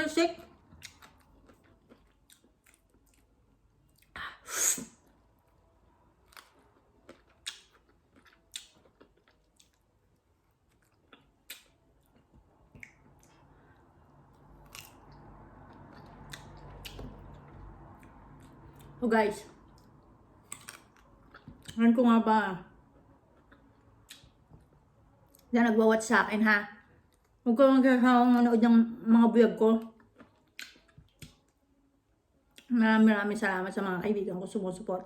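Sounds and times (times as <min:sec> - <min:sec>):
crunchy chewing: 0:00.6 - 0:04.1, 0:06.2 - 0:09.9, 0:14.6 - 0:18.9.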